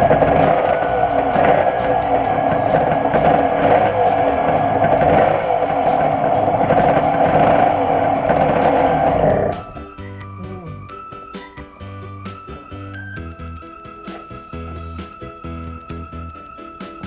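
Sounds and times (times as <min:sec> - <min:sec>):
two-stroke engine running: 0:00.0 - 0:09.7.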